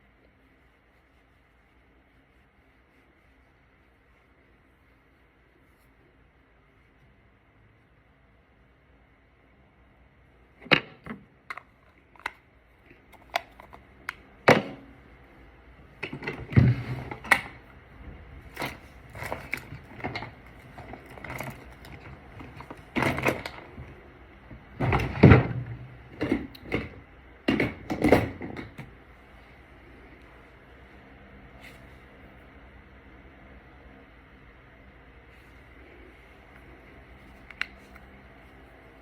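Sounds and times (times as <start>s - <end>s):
makeup cases clicking and knocking: 13.0s - 14.8s.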